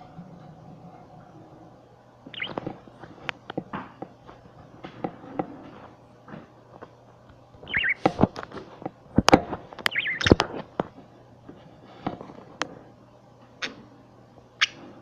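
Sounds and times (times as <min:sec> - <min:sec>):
budgies chirping: 0:02.3 - 0:02.6, 0:07.6 - 0:08.2, 0:09.8 - 0:10.4, 0:14.6 - 0:14.9.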